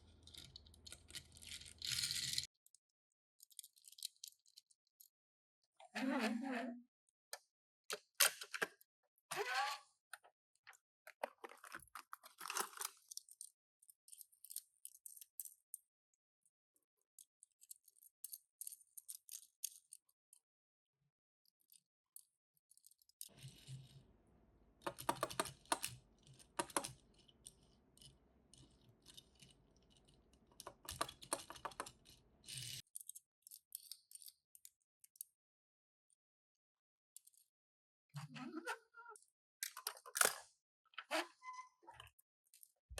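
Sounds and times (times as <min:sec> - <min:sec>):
toy cars clicking and rattling: 0:00.0 - 0:02.8, 0:03.4 - 0:05.1, 0:11.2 - 0:15.9, 0:17.2 - 0:20.1, 0:24.8 - 0:35.3.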